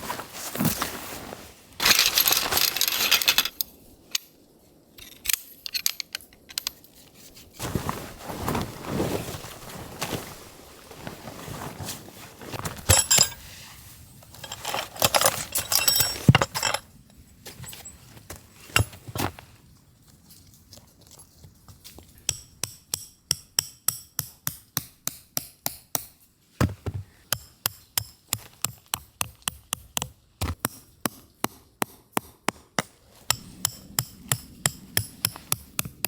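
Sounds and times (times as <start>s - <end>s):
gear rustling: 0.0s - 3.6s, 14.3s - 16.8s
small metallic clinks: 12.9s - 13.4s, 14.3s - 16.9s.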